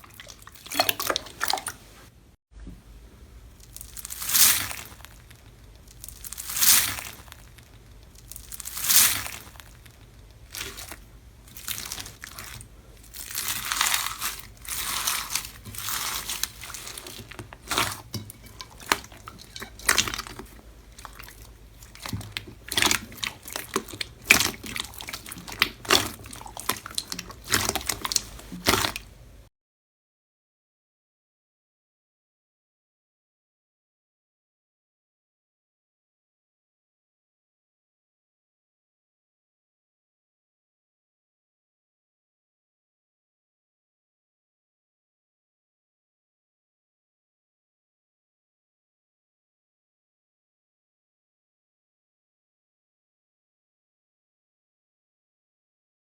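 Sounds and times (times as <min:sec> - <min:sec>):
slime crackling and popping: 0:03.5 - 0:29.4.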